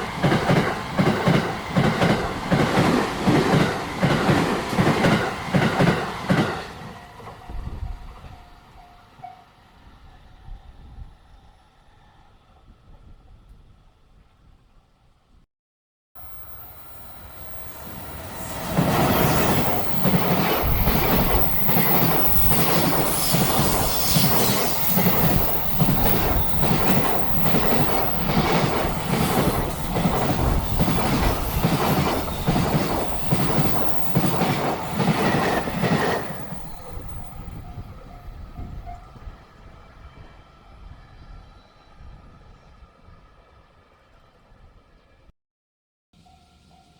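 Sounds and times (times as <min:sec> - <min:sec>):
freight train wheels clacking: 0:00.0 - 0:09.3, 0:17.0 - 0:39.4.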